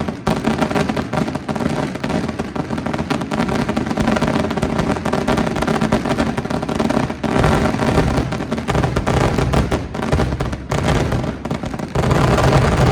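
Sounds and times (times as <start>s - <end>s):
fireworks bangs and crackles: 0.0s - 12.9s.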